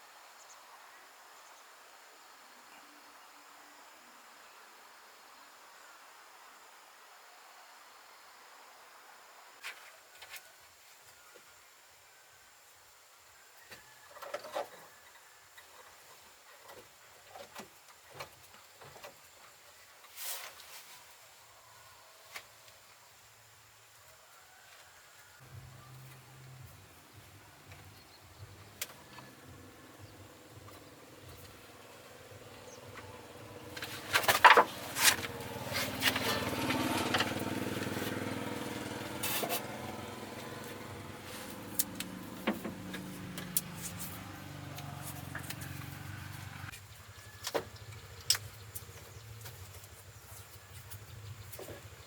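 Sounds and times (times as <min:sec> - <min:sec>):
motor engine running: 0:25.4 - 0:52.0.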